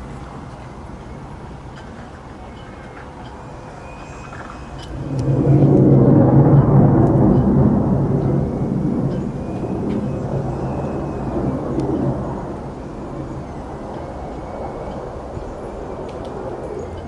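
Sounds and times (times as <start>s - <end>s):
jet engine flying past: 3.4s - 17.0s.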